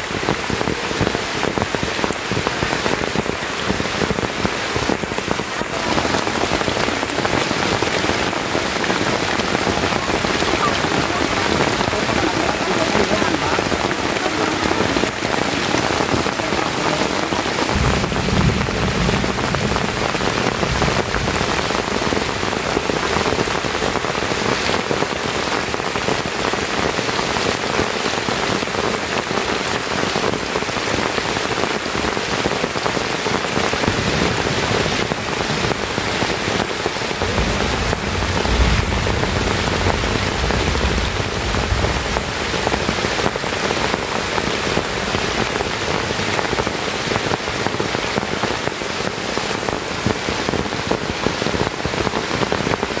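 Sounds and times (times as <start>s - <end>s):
heavy rain on leaves: 0.0s - 53.0s
low rumble: 17.4s - 22.1s, 37.2s - 42.6s.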